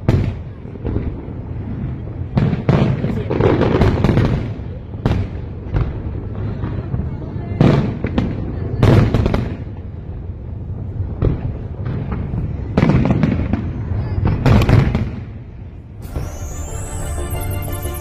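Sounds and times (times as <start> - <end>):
fireworks booming and crackling: 0.0 - 18.0
music: 16.0 - 18.0.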